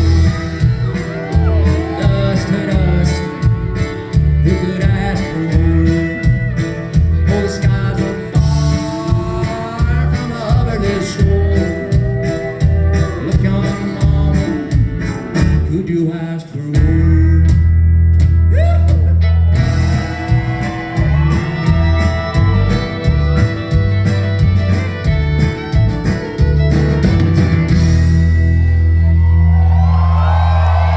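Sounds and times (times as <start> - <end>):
sliding fiddle melody: 0.0 - 7.2, 19.6 - 28.8
plucked bass notes: 0.0 - 16.0, 16.8 - 30.9
strummed guitar: 0.0 - 30.9.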